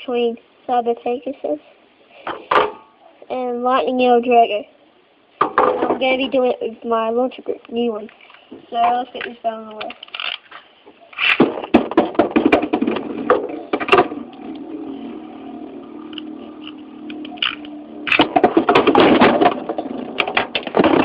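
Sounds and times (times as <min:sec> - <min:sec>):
spinning top hum: 0:12.4 - 0:20.9.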